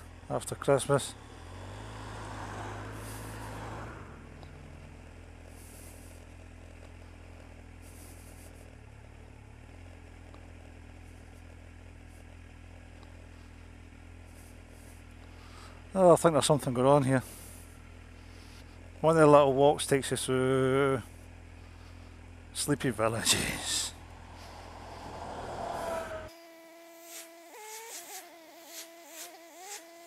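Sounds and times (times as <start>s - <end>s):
motorcycle engine idling: 0.0s - 1.5s, 4.2s - 26.3s.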